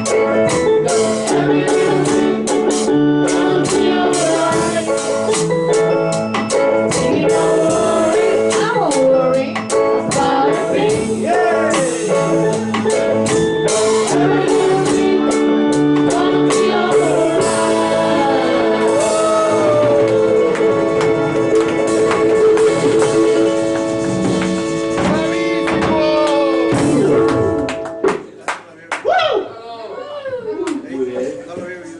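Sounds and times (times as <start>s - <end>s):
held chords: 0.0s - 28.1s
guitar: 0.0s - 28.2s
drum kit: 0.0s - 28.4s
person singing: 0.8s - 5.3s, 6.8s - 12.4s, 14.0s - 23.8s, 25.0s - 27.7s.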